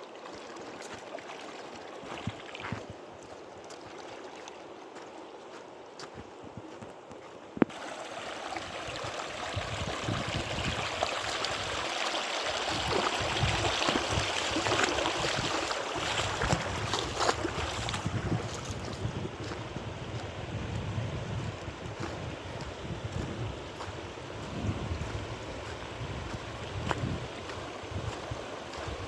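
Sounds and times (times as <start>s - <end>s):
river water rushing: 7.7s - 18.7s, 25.0s - 29.0s.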